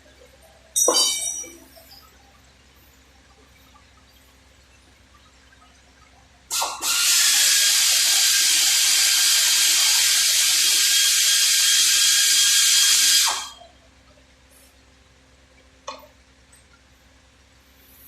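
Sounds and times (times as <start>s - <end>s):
compressed-air tool hissing: 6.5s - 13.5s.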